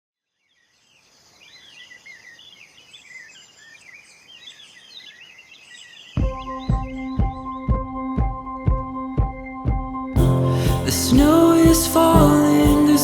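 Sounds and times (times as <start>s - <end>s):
birds chirping and warbling: 0.4s - 8.1s
song with thumping drum beat: 6.2s - 13.0s
steady high drone: 10.2s - 13.0s.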